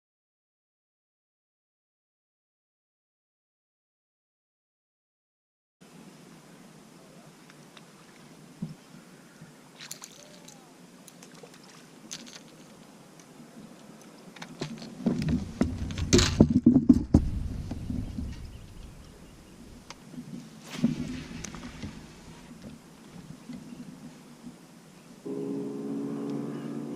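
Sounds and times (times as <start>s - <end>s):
low rumbling and clattering: 14.6s - 20.0s.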